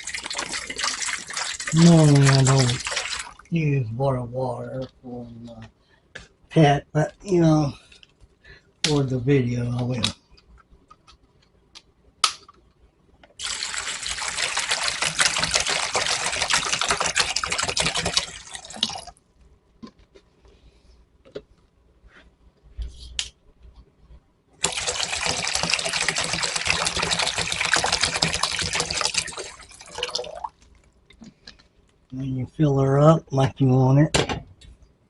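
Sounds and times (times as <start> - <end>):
water pouring into bowl: 0.0 - 3.5, 13.4 - 19.2, 24.6 - 30.9.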